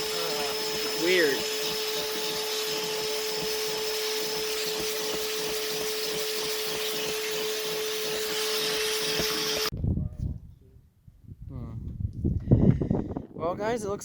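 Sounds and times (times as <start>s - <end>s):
vacuum cleaner motor whining: 0.0s - 9.7s.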